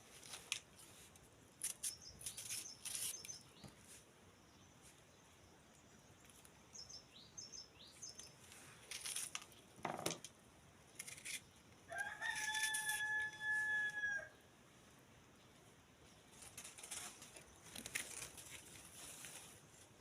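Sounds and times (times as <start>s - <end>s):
rooster crowing: 11.9s - 14.4s
clicks and rustles: 16.3s - 19.6s.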